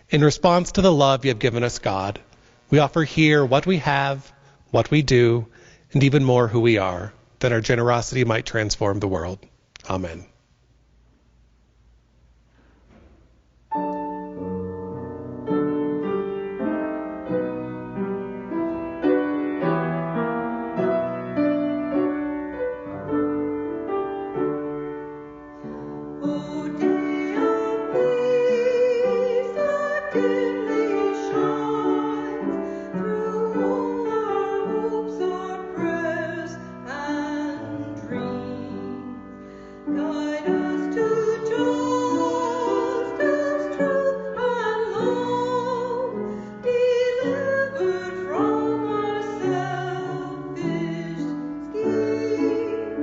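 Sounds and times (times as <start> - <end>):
piano playing: 13.7 - 53.0
person singing with vibrato: 25.6 - 53.0.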